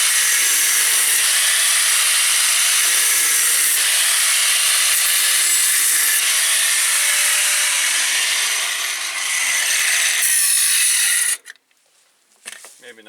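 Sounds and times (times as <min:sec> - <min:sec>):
metal-cutting tool hissing: 0:00.0 - 0:11.4.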